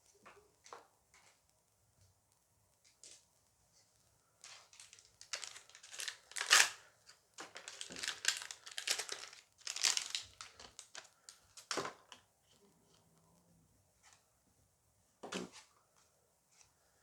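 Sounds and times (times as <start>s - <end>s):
foil pack tearing and crinkling: 4.7s - 6.8s, 7.4s - 11.8s.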